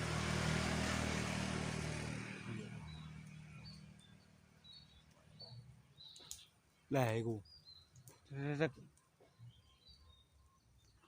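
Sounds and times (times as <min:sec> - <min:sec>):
vehicle engine passing: 0:00.0 - 0:05.0.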